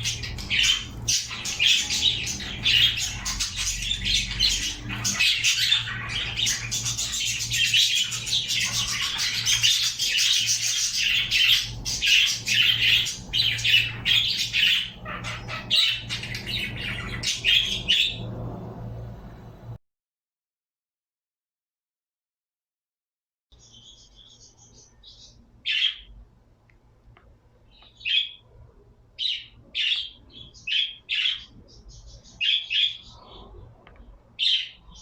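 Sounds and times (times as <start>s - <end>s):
birds chirping and squawking: 0.0s - 19.0s, 23.6s - 26.2s, 27.7s - 28.6s, 29.2s - 35.0s
steady low hum: 0.0s - 19.8s.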